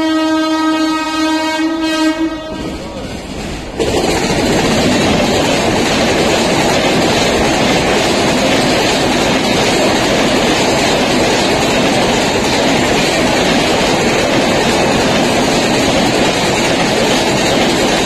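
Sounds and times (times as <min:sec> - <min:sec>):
locomotive horn blast: 0:00.0 - 0:03.0
train coaches rushing past: 0:01.4 - 0:18.0.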